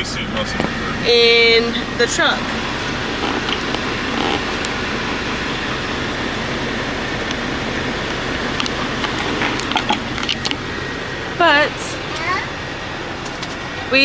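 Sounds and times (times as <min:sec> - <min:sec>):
truck engine hum: 0:00.0 - 0:14.0.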